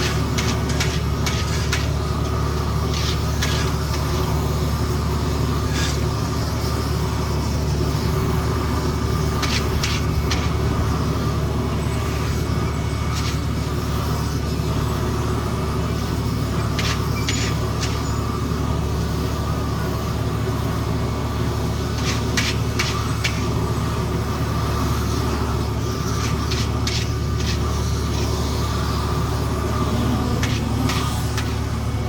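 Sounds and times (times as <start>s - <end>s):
short clanks and scrapes: 0.0s - 4.3s, 5.7s - 6.1s, 9.4s - 10.6s, 16.7s - 18.2s, 22.0s - 23.4s, 26.1s - 28.3s
heavy diesel machinery running: 0.0s - 32.0s.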